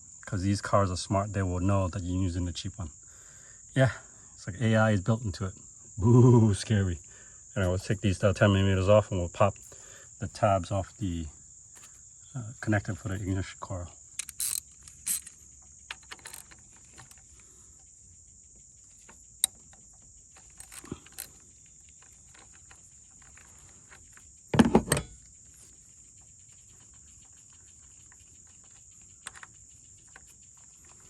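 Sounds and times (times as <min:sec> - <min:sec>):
crickets trilling: 0:00.0 - 0:31.0
hand tools clicking on engine: 0:14.1 - 0:17.4, 0:19.0 - 0:24.0.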